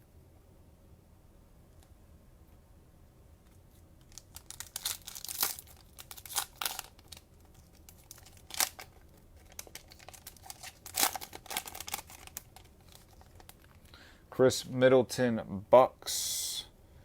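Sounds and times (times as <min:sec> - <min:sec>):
cellophane wrapper tearing and crinkling: 0:04.0 - 0:13.8.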